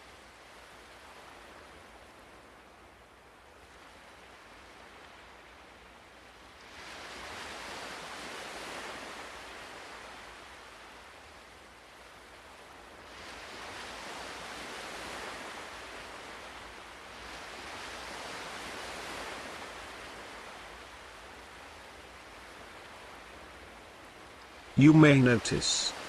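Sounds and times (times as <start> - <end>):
ocean waves washing onto shore: 0.0 - 26.0.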